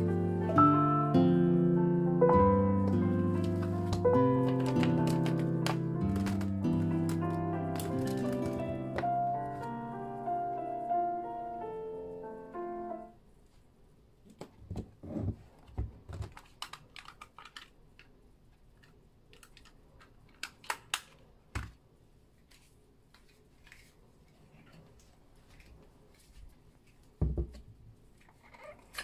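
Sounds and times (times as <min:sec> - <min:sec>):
background music: 0:00.0 - 0:13.1.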